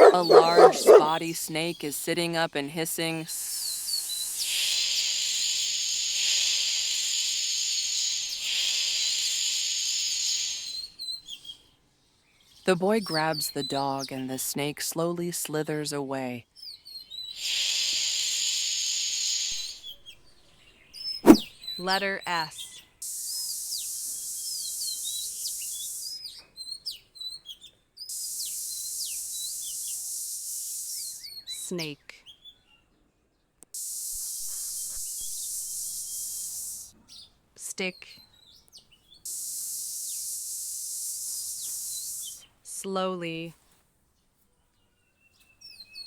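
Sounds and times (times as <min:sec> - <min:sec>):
snake hissing: 0:00.0 - 0:01.2, 0:04.1 - 0:10.7, 0:17.4 - 0:19.8, 0:21.2 - 0:21.5, 0:33.8 - 0:36.9, 0:39.3 - 0:42.4
small birds chirping: 0:00.0 - 0:14.7, 0:16.5 - 0:33.0, 0:34.0 - 0:42.6
short bird chirps: 0:21.2 - 0:21.6.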